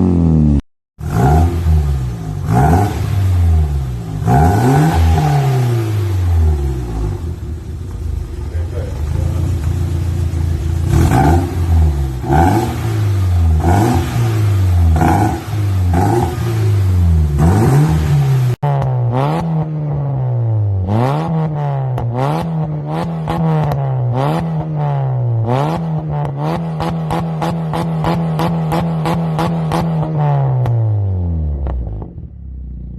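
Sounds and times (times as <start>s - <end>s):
engine revving through exhaust: 0.0s - 7.7s, 8.5s - 32.3s
exhaust crackle: 1.0s - 19.0s.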